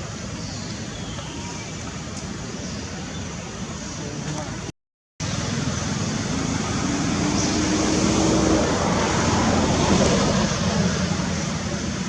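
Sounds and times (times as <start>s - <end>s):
road traffic noise: 0.0s - 12.0s
vehicle engine passing by: 5.4s - 12.0s.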